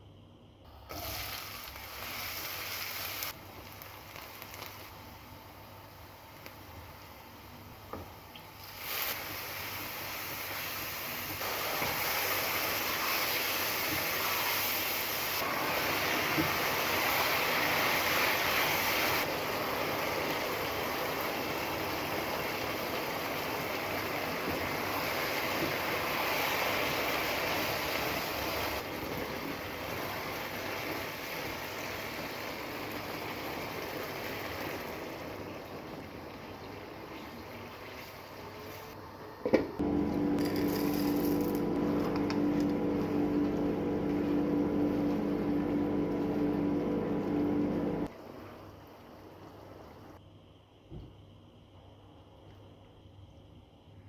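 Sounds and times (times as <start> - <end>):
food sizzling in a frying pan: 1.0 - 5.3, 8.5 - 35.6.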